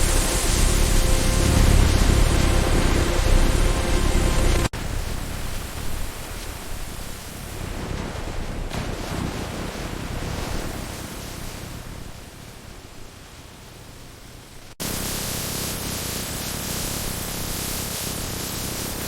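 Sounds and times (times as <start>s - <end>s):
louder brighter hiss: 0.0s - 4.7s
steady hiss: 0.0s - 4.7s, 14.8s - 19.0s.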